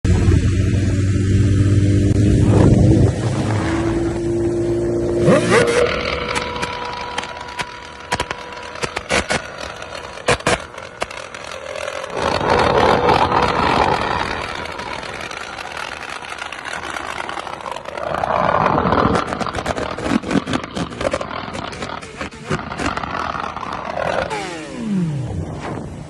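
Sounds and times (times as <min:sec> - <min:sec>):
loud rushing noise: 0:00.0 - 0:26.0
motorcycle engine revving: 0:00.1 - 0:26.0
exhaust pops and crackles: 0:05.2 - 0:25.8.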